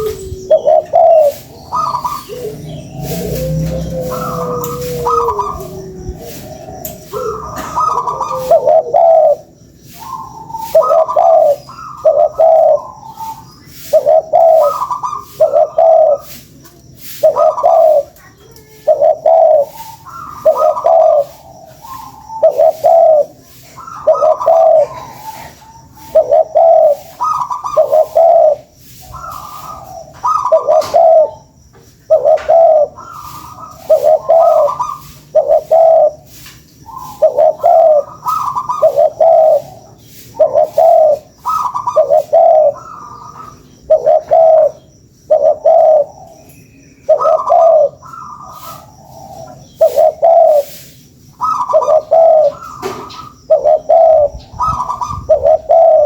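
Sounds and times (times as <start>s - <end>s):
doves cooing: 0.0s - 56.0s.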